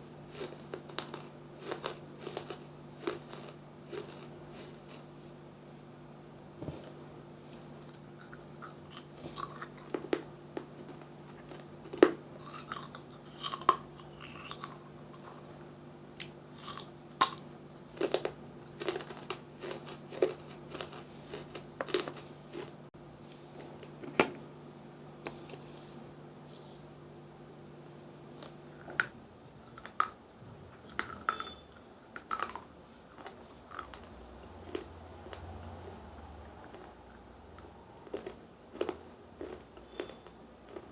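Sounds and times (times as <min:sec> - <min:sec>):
grinding chews: 0:00.2 - 0:05.1, 0:07.5 - 0:22.8, 0:32.2 - 0:40.9.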